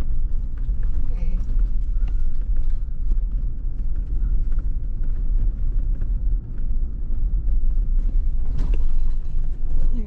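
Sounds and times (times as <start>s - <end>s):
off-road vehicle rumbling: 0.0s - 10.0s.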